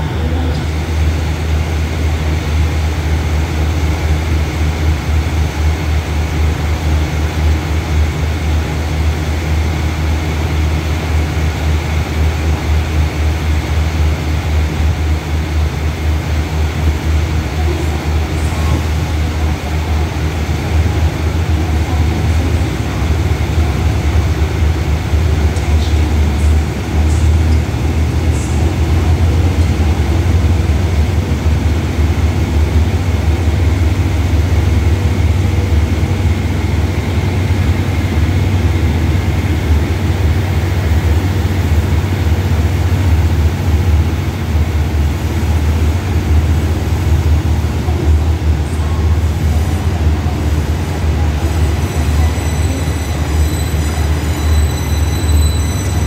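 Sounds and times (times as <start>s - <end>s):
train rumbling: 0.0s - 56.0s
high squealing tones: 51.6s - 56.0s.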